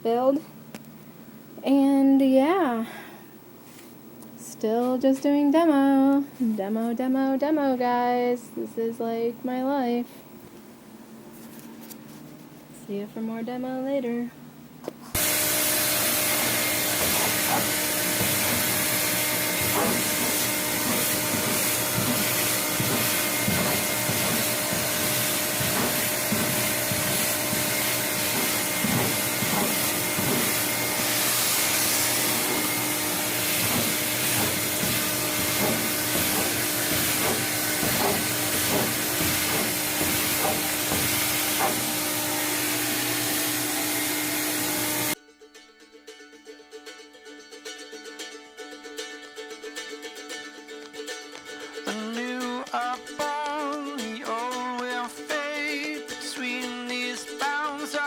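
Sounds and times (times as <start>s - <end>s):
vacuum cleaner motor running: 15.2s - 45.2s
vacuum nozzle knocking and scraping: 15.2s - 45.2s.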